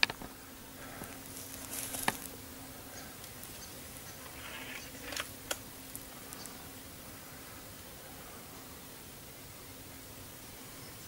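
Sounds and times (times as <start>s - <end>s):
insect buzzing drone: 0.0s - 11.0s
air rifle clicks: 3.3s - 5.7s.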